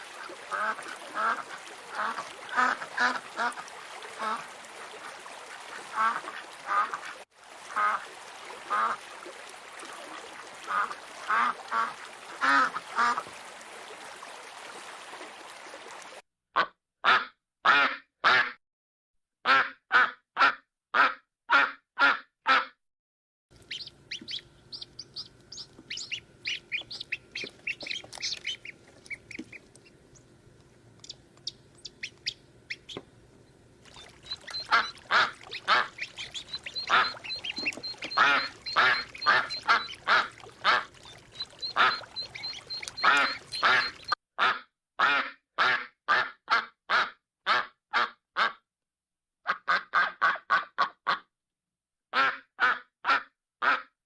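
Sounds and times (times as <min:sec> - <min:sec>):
ducks quacking: 0:00.0 - 0:04.5, 0:05.8 - 0:09.0, 0:10.6 - 0:13.3, 0:23.7 - 0:29.8, 0:33.9 - 0:46.3.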